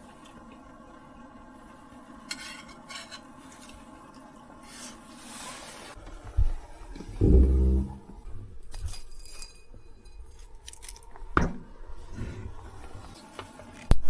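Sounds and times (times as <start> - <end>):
utensils clinking on cookware: 2.3 - 3.8
steady low hum: 6.0 - 9.0
dull low thump: 7.2 - 8.1.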